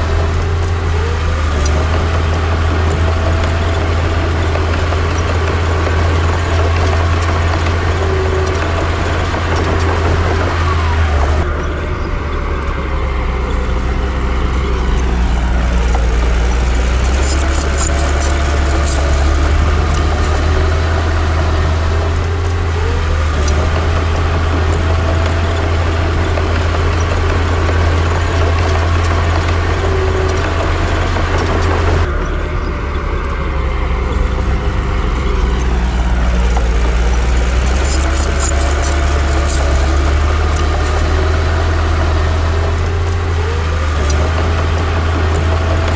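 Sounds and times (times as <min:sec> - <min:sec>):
bulldozer diesel engine running: 0:00.0 - 0:45.9
sharp clicks: 0:12.5 - 0:32.2, 0:34.0 - 0:45.9.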